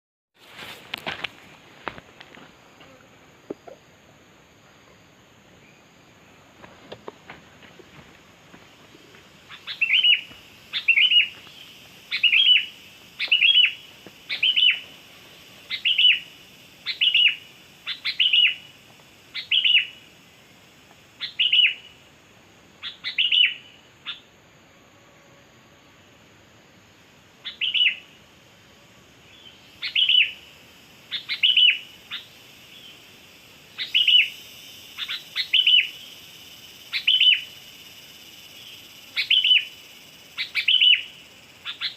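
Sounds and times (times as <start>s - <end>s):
bulbul calling: 9.5s - 14.9s, 15.7s - 18.7s, 29.8s - 30.4s, 31.1s - 32.4s, 33.8s - 36.0s, 36.9s - 37.5s, 39.1s - 39.8s, 40.4s - 41.9s.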